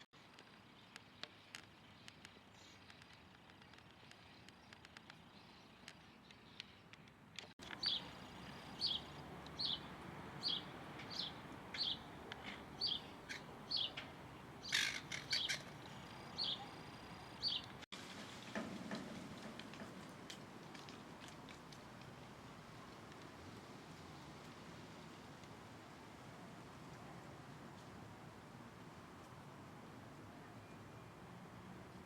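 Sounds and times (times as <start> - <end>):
bird chirping: 0.3 - 17.8.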